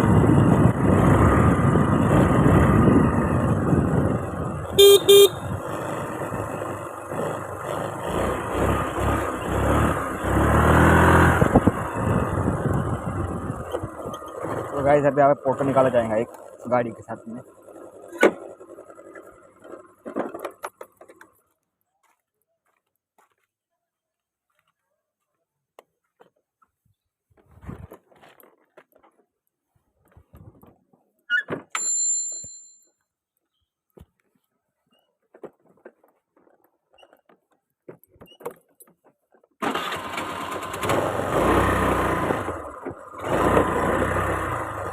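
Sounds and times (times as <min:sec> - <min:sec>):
wind noise: 0:00.0 - 0:05.6, 0:11.3 - 0:14.1
engine revving: 0:00.0 - 0:16.3, 0:39.6 - 0:44.9
road traffic: 0:00.0 - 0:21.5, 0:39.6 - 0:44.9
vehicle horn honk: 0:04.7 - 0:05.5
bell-like metallic ring: 0:31.8 - 0:32.9.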